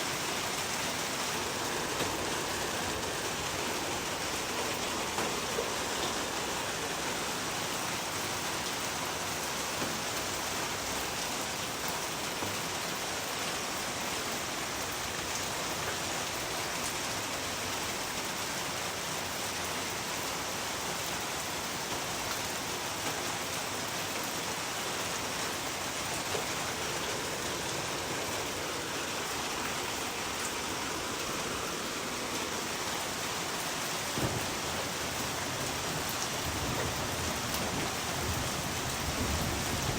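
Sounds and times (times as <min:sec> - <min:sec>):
rain falling on a surface: 0:00.0 - 0:39.9
faint raindrop ticks: 0:01.2 - 0:07.8, 0:08.7 - 0:11.2, 0:21.8 - 0:23.4, 0:33.7 - 0:39.9.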